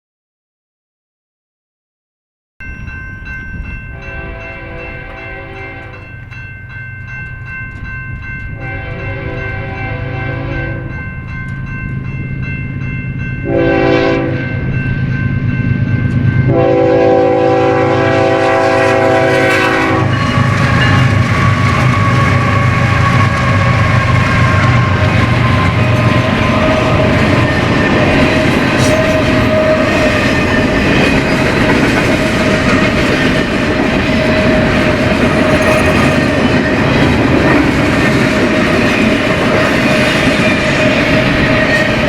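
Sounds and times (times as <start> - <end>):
passing train rumble and rail noise: 2.6 - 42.0
locomotive air horn blasts: 4.0 - 6.1, 8.6 - 11.0, 13.4 - 14.5, 16.5 - 20.4.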